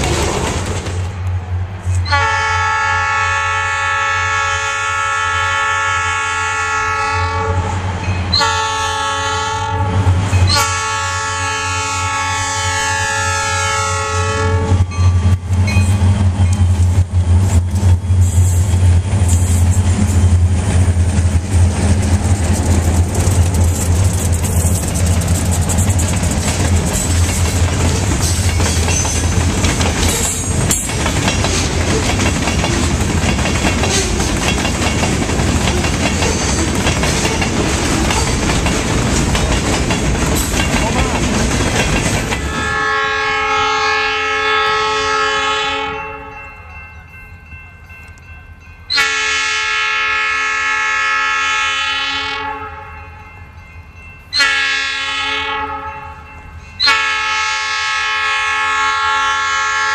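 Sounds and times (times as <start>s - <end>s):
freight cars clattering on rails: 0.0s - 1.3s, 14.8s - 42.7s
train horn: 2.0s - 15.4s, 42.4s - 46.4s, 48.9s - 53.2s, 54.3s - 59.9s
locomotive engine drone: 9.8s - 44.9s.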